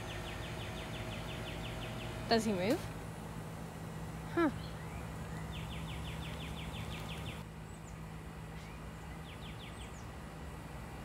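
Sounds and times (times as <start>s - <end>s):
songbird trills: 0.0s - 2.8s, 4.3s - 10.2s
steady low hum: 0.0s - 11.0s
thin high bird chirps: 4.5s - 8.0s.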